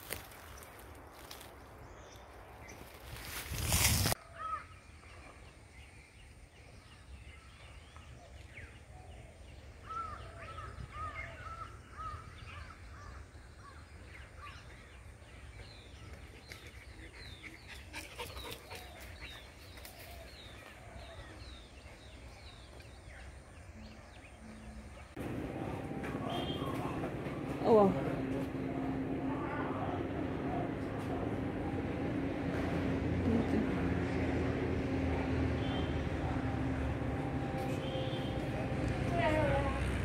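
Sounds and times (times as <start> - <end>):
steady low rumble: 23.9 - 40.0.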